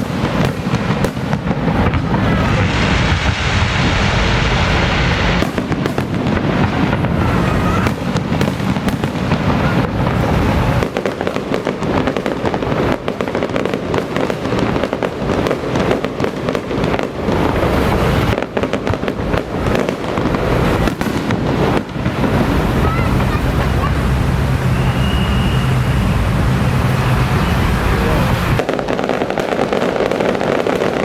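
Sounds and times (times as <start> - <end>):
fireworks cracks and bangs: 0.0 - 31.0.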